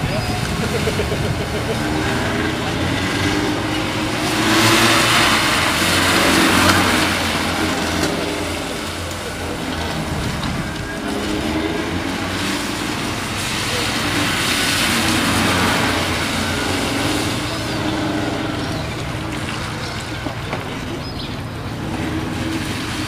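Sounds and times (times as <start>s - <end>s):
car engine running hard: 0.0s - 23.0s
tyres hissing on wet road: 0.0s - 23.0s.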